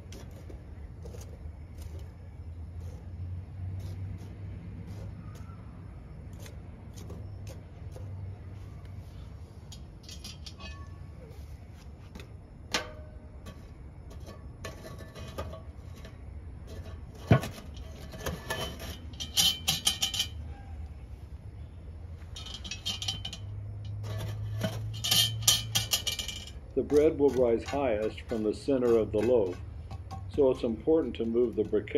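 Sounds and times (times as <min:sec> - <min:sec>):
metal tongs clicking on charcoal: 0:09.6 - 0:10.9, 0:16.8 - 0:20.4, 0:22.3 - 0:31.9
cast-iron pot clanking: 0:09.6 - 0:11.0, 0:12.6 - 0:20.5, 0:22.2 - 0:31.9.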